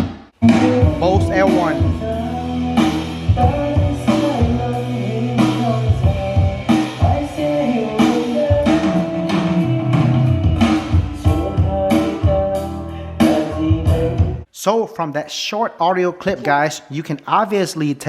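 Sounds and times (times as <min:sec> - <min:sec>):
song with singing guitar and drums: 0:00.4 - 0:14.5.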